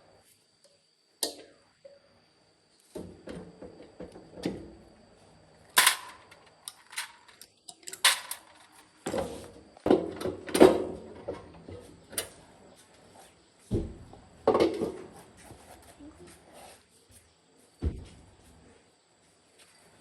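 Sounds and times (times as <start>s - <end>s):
knocks and clunks of metal parts: 5.8s - 11.9s.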